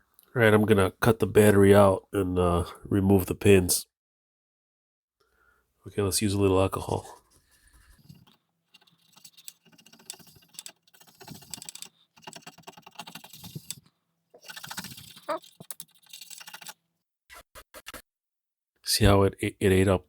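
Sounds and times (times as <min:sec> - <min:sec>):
brush scrubbing circuit board: 0:07.8 - 0:13.8, 0:14.4 - 0:18.0.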